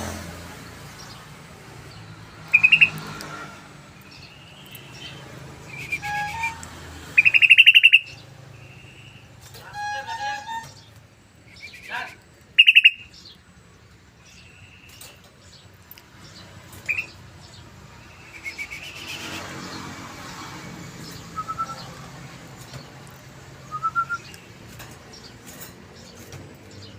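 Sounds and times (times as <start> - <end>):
bulbul chirps and calls: 2.5 - 3.0, 7.2 - 9.3, 9.9 - 13.4, 16.8 - 19.4.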